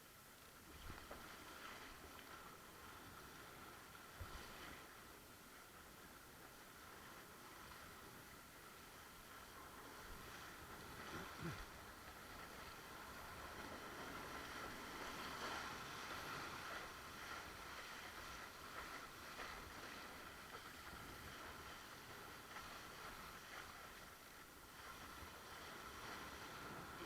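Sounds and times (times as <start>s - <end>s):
wind noise: 0.7s - 4.9s, 9.2s - 27.0s.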